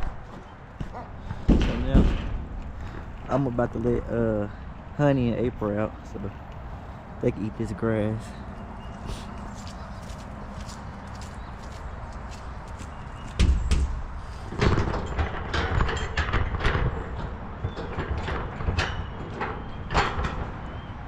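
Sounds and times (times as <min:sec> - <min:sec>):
metal gate clanking and rattling: 0:00.0 - 0:05.8, 0:13.4 - 0:20.9.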